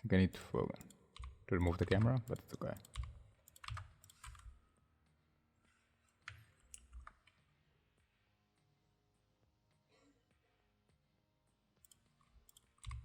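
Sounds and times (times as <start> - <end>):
keyboard and mouse clicks: 0.8 - 4.5, 11.8 - 13.0.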